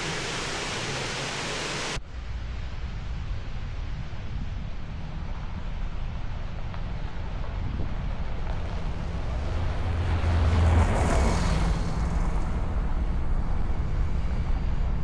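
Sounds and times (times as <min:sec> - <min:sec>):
van engine and road rumble: 0:02.0 - 0:15.0
rushing noise: 0:07.4 - 0:15.0.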